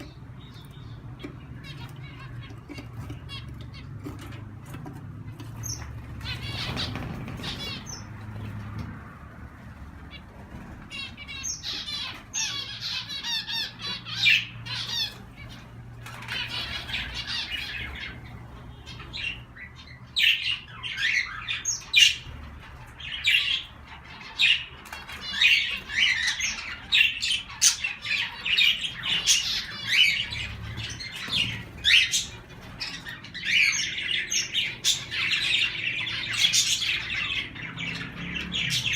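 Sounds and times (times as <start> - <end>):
cage birds chirping and squawking: 0.0 - 38.9.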